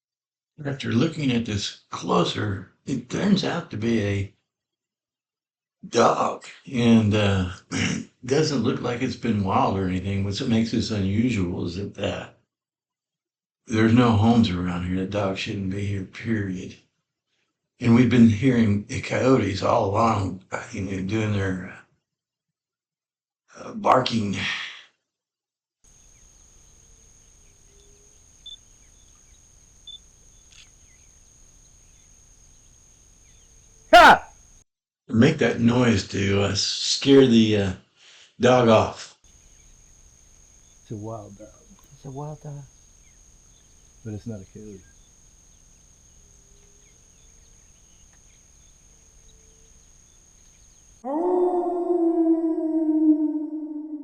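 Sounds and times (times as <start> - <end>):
high-pitched insect drone: 25.9 - 33.4
steady hiss: 25.9 - 34.5, 39.3 - 51.0
coyotes yelping: 26.0 - 34.4, 39.3 - 52.5
constant high whine: 39.4 - 51.0.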